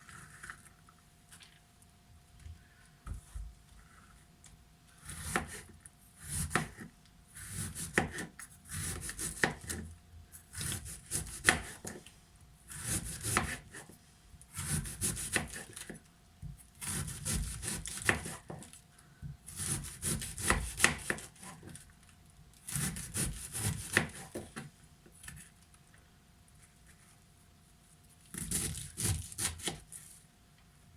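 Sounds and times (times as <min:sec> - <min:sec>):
knife slicing cabbage: 0:05.0 - 0:12.0, 0:12.7 - 0:13.9, 0:14.5 - 0:16.0, 0:16.8 - 0:18.7, 0:19.5 - 0:21.8, 0:22.6 - 0:24.6, 0:28.3 - 0:30.2.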